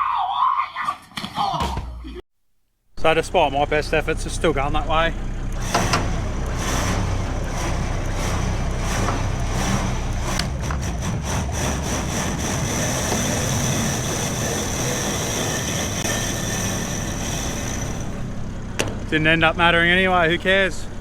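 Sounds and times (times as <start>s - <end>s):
high-pitched whine: 3.0s - 21.0s
vehicle engine running: 3.0s - 21.0s.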